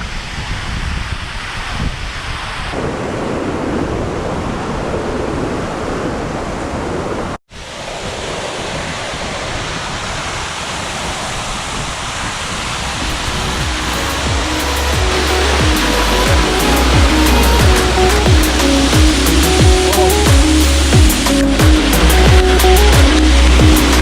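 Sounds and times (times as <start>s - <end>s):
wind on microphone: 0.0s - 24.0s
ocean surf: 1.2s - 24.0s
waterfall rushing: 7.5s - 24.0s.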